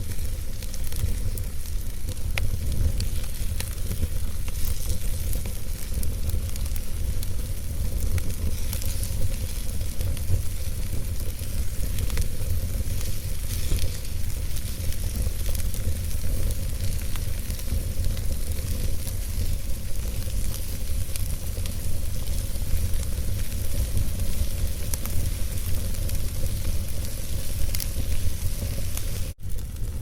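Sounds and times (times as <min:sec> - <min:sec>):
fire hissing sizzle: 0:00.0 - 0:30.0
fire low rumble: 0:00.0 - 0:30.0
wood crackling and popping: 0:00.0 - 0:30.0.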